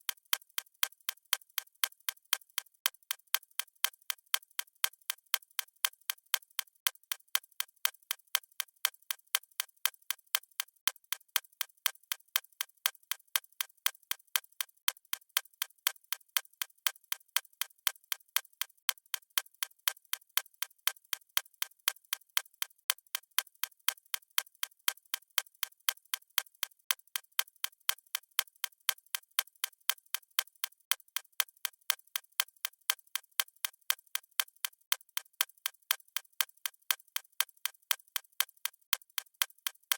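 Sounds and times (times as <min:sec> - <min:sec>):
clock ticking: 0:30.9 - 0:39.9.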